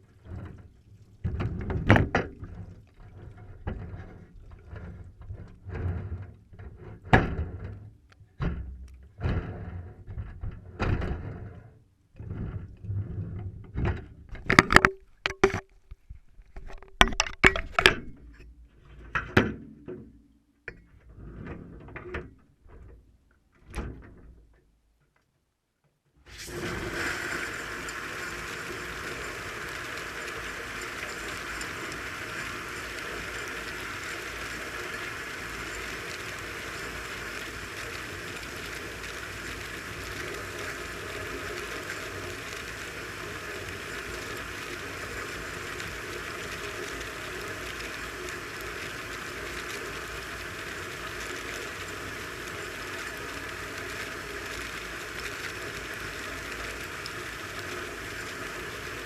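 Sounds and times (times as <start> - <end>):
water spraying inside dishwasher: 26.3 - 59.0.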